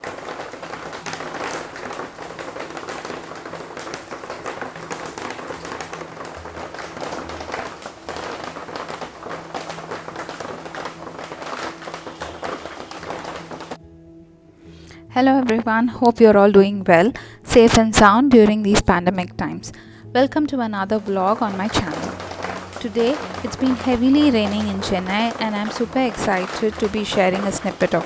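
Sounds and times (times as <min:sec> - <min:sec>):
heavy rain falling: 0:00.0 - 0:13.8, 0:20.8 - 0:28.0
sharp drips: 0:00.0 - 0:13.8, 0:20.8 - 0:28.0.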